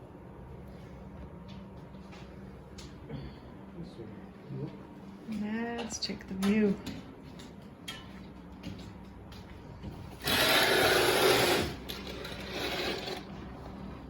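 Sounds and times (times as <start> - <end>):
sliding door rasping open: 10.2 - 13.3.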